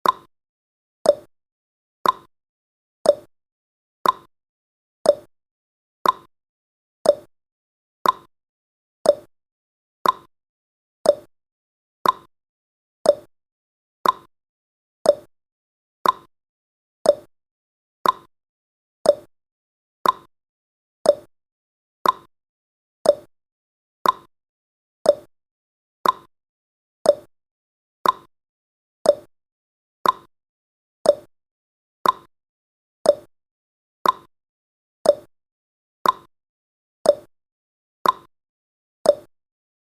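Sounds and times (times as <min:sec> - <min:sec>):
timer ticking tick-tock: 0:00.0 - 0:00.3, 0:01.0 - 0:01.3, 0:02.0 - 0:02.3, 0:03.0 - 0:03.3, 0:04.0 - 0:04.3, 0:05.0 - 0:05.3, 0:06.0 - 0:06.3, 0:07.0 - 0:07.3, 0:08.0 - 0:08.3, 0:09.0 - 0:09.3, 0:10.0 - 0:10.3, 0:11.0 - 0:11.3, 0:12.0 - 0:12.3, 0:13.0 - 0:13.3, 0:14.0 - 0:14.3, 0:15.0 - 0:15.3, 0:16.0 - 0:16.3, 0:17.0 - 0:17.3, 0:18.0 - 0:18.3, 0:19.0 - 0:19.3, 0:20.0 - 0:20.3, 0:21.0 - 0:21.3, 0:22.0 - 0:22.3, 0:23.0 - 0:23.3, 0:24.0 - 0:24.3, 0:25.0 - 0:25.3, 0:26.0 - 0:26.3, 0:27.0 - 0:27.3, 0:28.0 - 0:28.3, 0:29.0 - 0:29.3, 0:30.0 - 0:30.3, 0:31.0 - 0:31.3, 0:32.0 - 0:32.3, 0:33.0 - 0:33.3, 0:34.0 - 0:34.3, 0:35.0 - 0:35.3, 0:36.0 - 0:36.3, 0:37.0 - 0:37.3, 0:38.0 - 0:38.3, 0:39.0 - 0:39.4.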